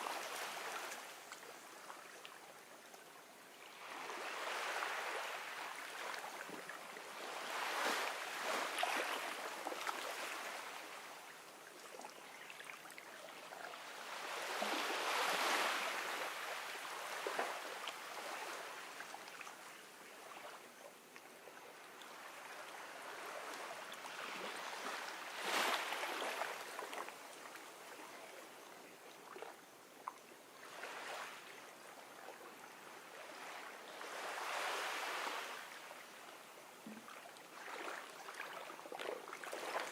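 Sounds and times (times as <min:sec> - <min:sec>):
ocean waves washing on beach: 0:03.7 - 0:11.3, 0:13.7 - 0:20.7, 0:21.7 - 0:28.6, 0:32.6 - 0:36.5.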